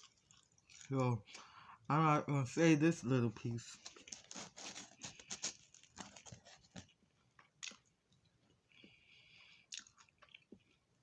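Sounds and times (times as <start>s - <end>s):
chewing food close-up: 0.0s - 1.5s, 3.8s - 11.0s
wet mouth clicks and smacks: 9.7s - 10.4s.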